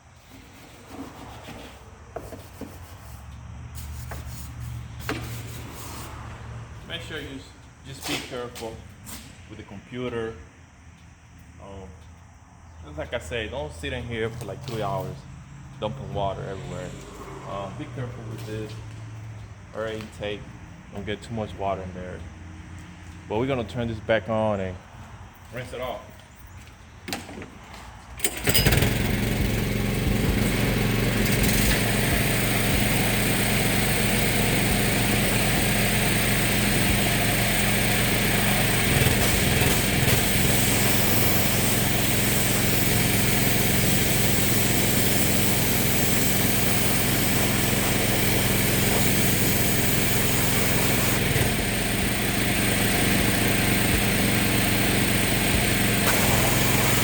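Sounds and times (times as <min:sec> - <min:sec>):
water spray hissing: 0:02.3 - 0:06.3, 0:30.1 - 0:57.0
pressure washer running: 0:28.2 - 0:57.0.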